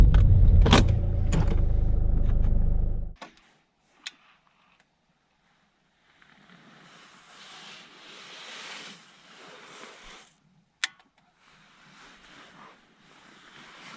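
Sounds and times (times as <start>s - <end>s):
car engine idling: 0.0s - 3.2s.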